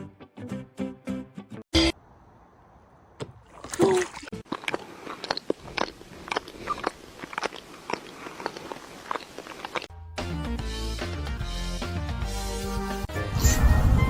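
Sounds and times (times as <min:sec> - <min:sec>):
music: 0:00.0 - 0:01.6, 0:09.9 - 0:14.0
animal chewing crunchy food: 0:04.2 - 0:09.9.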